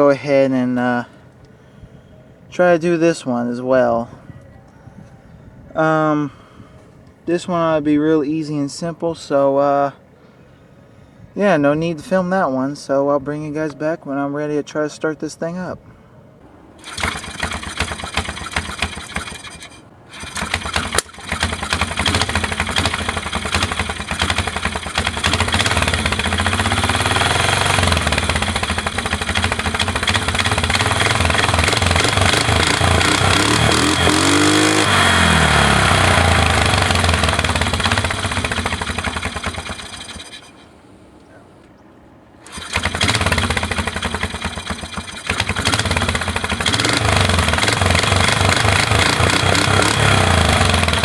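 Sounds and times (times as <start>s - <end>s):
atv engine starting and revving: 16.8s - 40.7s, 42.4s - 51.0s.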